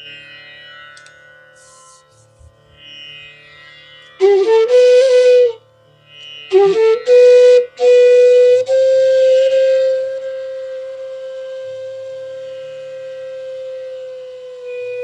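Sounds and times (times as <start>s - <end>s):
bamboo flute melody: 4.2s - 5.7s, 6.4s - 15.0s.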